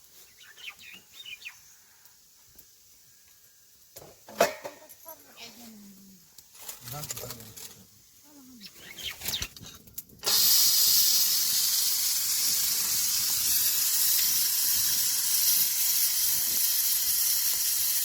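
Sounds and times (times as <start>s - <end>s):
heavy rain hissing: 10.2s - 18.0s.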